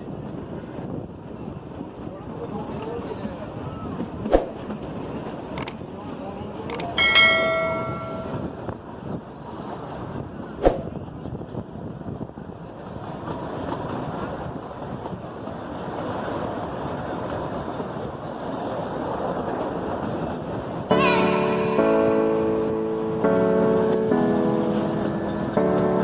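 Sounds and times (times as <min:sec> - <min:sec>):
wind on microphone: 0:00.0 - 0:05.5, 0:07.0 - 0:20.9
train rumbling: 0:00.0 - 0:26.0
sharp click: 0:06.7 - 0:07.0.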